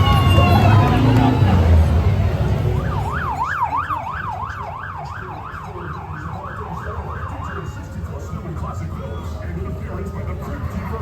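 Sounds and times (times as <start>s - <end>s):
siren yelping: 2.8s - 8.2s.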